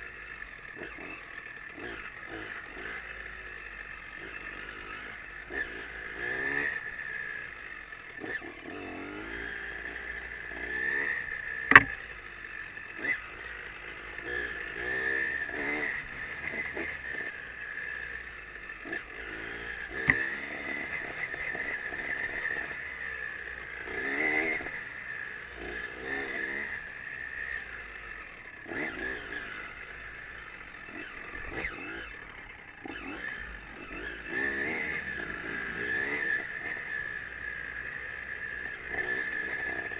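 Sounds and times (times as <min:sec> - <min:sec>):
motorcycle engine revving: 0:00.0 - 0:39.9
sharp knock: 0:11.7 - 0:12.0.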